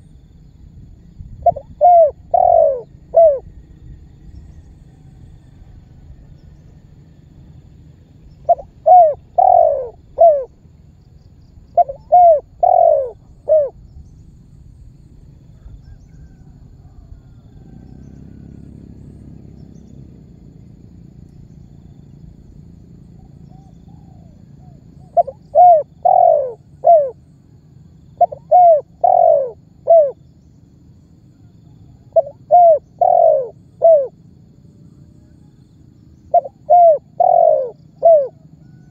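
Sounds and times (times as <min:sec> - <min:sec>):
faint low hum: 0:00.0 - 0:38.9
dove cooing: 0:01.3 - 0:03.6, 0:08.4 - 0:10.6, 0:11.7 - 0:13.8, 0:23.1 - 0:27.2, 0:28.1 - 0:30.2, 0:31.8 - 0:34.2, 0:36.3 - 0:38.9.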